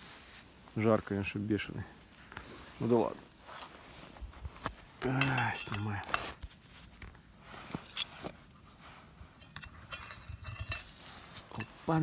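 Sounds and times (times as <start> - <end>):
light metal clinks: 5.0 - 6.2, 9.3 - 11.8.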